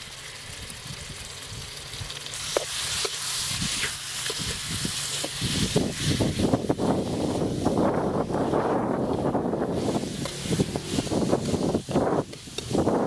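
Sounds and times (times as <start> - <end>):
chicken sizzling in hot oil: 0.0 - 13.0
metal spatula scraping a wok: 9.8 - 12.7.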